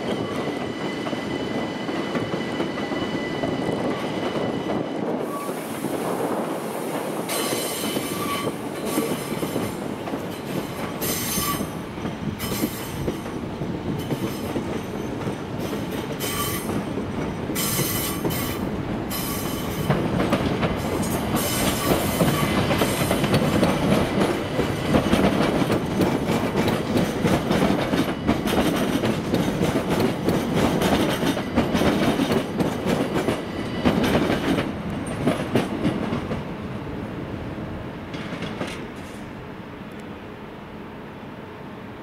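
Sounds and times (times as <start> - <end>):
train wheels clattering over rails: 6.7 - 36.5, 38.1 - 39.3.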